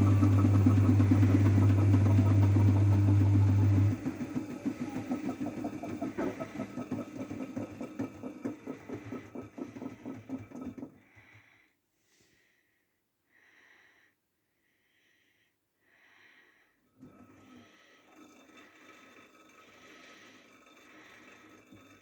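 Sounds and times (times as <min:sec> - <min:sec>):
washing machine pulsing hum: 0:00.0 - 0:11.0.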